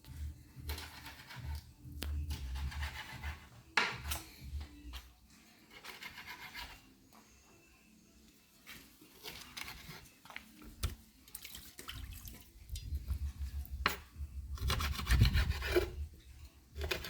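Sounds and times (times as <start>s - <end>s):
rubbing and scraping: 0.0s - 4.6s, 5.6s - 6.9s, 13.1s - 17.0s.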